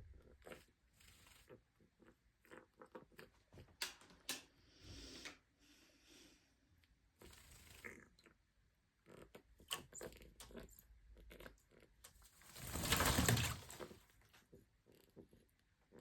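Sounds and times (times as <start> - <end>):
pig clicks and squeaks: 9.0 - 12.2.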